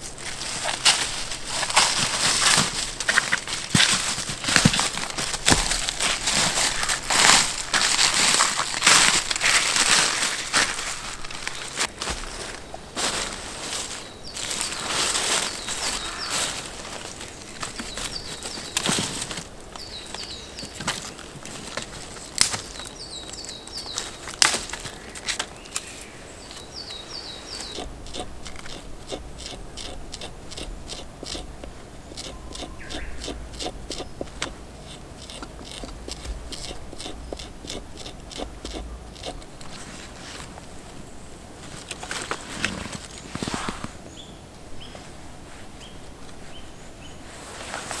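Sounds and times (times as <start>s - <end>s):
bird chirping: 13.9s - 27.9s, 32.2s - 34.4s, 43.0s - 45.1s.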